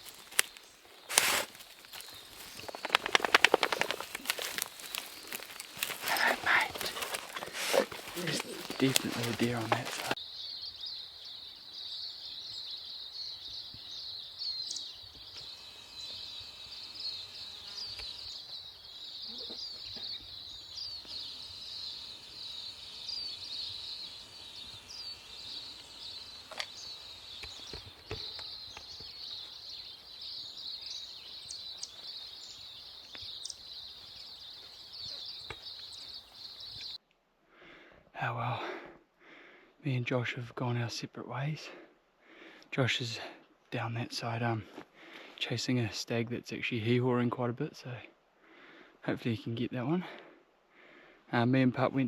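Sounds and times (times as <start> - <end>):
faint clicks and chirps: 0.0 - 10.8, 13.5 - 37.2
high-pitched insect chorus: 0.0 - 37.0.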